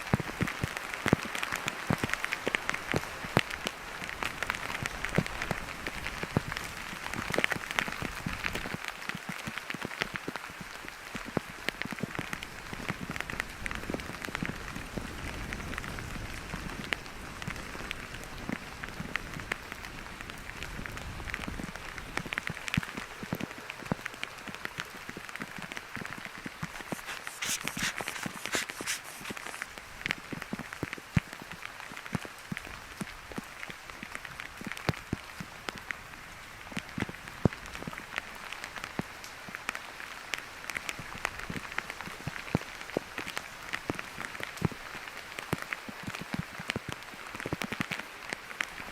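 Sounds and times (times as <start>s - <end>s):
steady rain falling: 0.0s - 26.3s, 29.5s - 48.9s.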